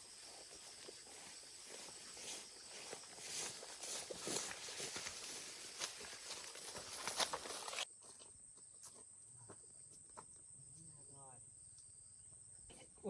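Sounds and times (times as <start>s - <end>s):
footsteps through undergrowth: 0.0s - 9.0s
high insect drone: 0.0s - 12.8s.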